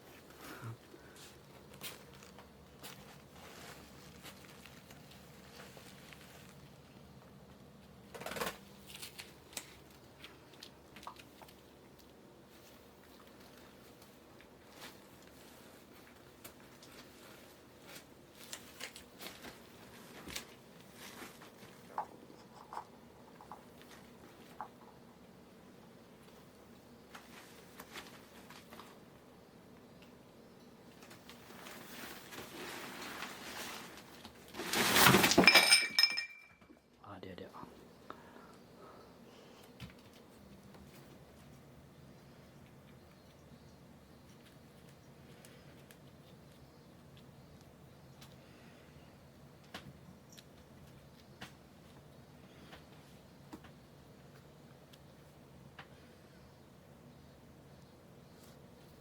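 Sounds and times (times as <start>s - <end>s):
scraping rustle: 0.0s - 6.9s, 12.5s - 22.8s, 31.0s - 35.5s
hard object clattering: 35.0s - 36.6s.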